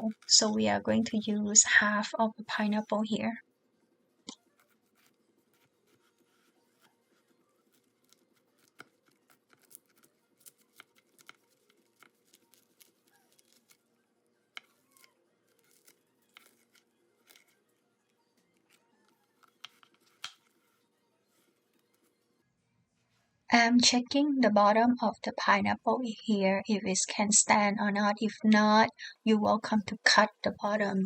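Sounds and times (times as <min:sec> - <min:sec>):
knife cutting pineapple: 0:04.3 - 0:17.7, 0:18.5 - 0:22.2.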